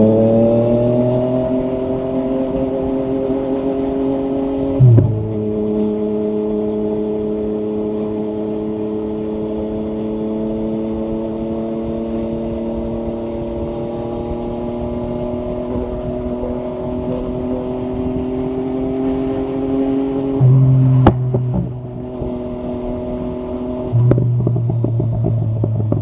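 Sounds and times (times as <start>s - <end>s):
motorcycle engine running: 1.6s - 26.0s
loud low thump: 4.8s - 5.4s.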